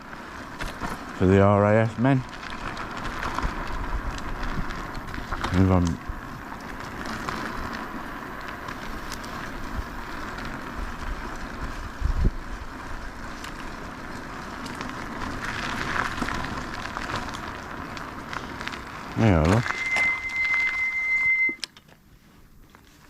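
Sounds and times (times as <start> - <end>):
tyre noise rolling: 0.0 - 23.0
wind on microphone: 11.8 - 12.6.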